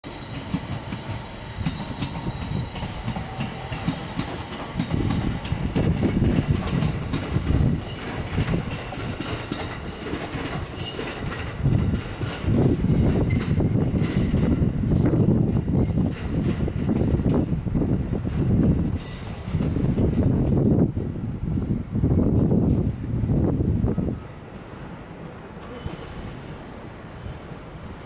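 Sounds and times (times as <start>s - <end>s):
train wagons rumbling: 0.0s - 28.0s
wheels clacking over rail joints: 0.3s - 20.6s.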